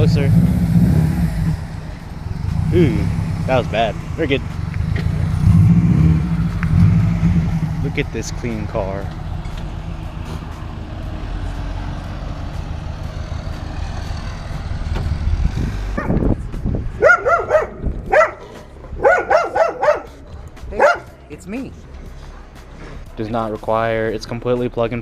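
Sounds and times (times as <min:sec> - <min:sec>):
car engine running: 0:00.0 - 0:23.2
dog barking: 0:16.0 - 0:16.2, 0:17.0 - 0:20.2, 0:20.8 - 0:21.1.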